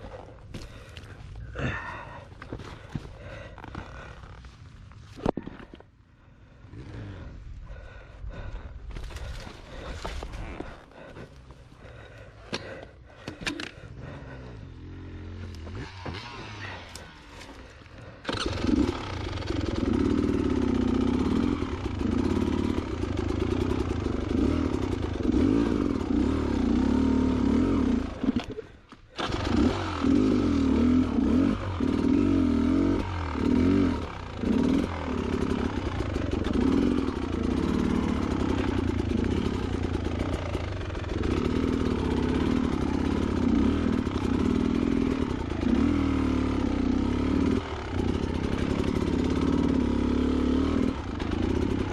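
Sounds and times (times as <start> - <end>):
dirt bike engine revving: 11.8 - 51.9.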